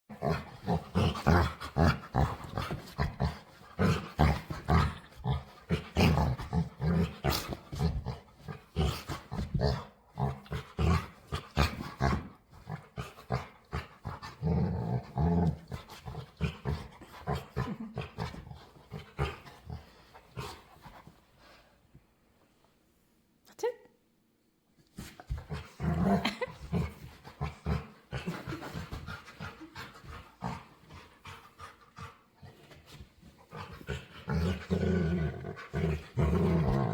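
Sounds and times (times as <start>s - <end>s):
dog growling playfully: 0.1s - 21.0s, 25.0s - 36.9s.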